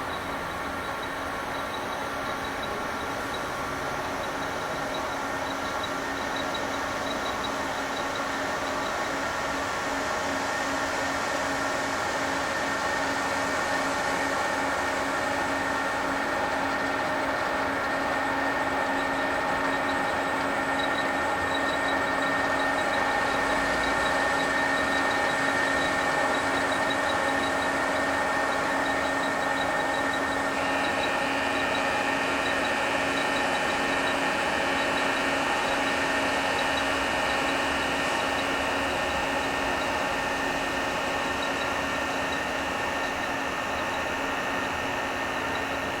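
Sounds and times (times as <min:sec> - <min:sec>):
diesel locomotive humming: 0:00.0 - 0:09.2.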